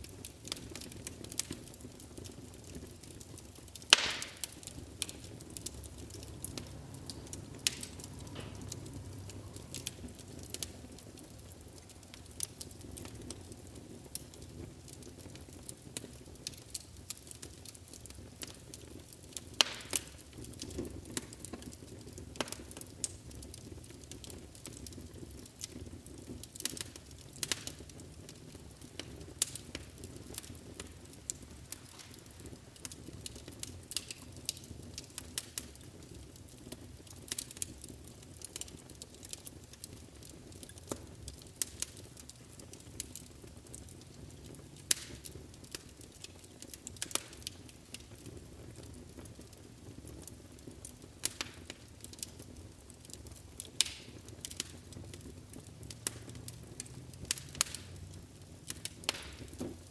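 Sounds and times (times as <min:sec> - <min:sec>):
low rumble of flames: 0:00.0 - 0:59.9
wood fire crackling and popping: 0:00.0 - 0:59.9.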